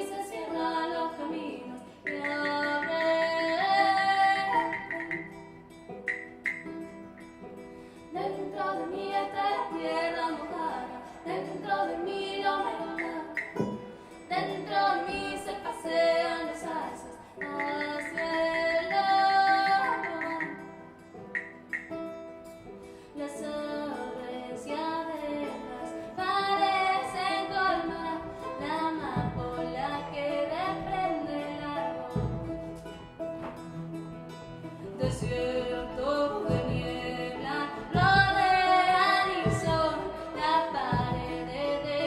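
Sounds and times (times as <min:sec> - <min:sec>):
woman singing: 0:00.0 - 0:05.5, 0:08.1 - 0:21.0, 0:23.1 - 0:32.9, 0:34.8 - 0:42.0
guitar accompaniment: 0:00.0 - 0:42.0.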